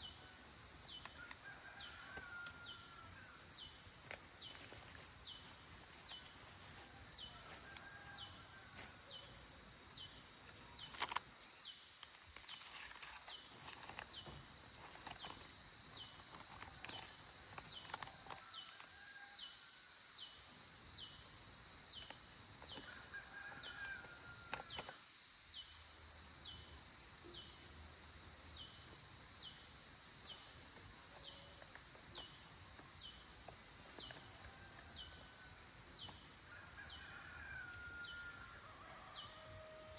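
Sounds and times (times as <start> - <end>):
insects shrilling: 0.0 - 39.9.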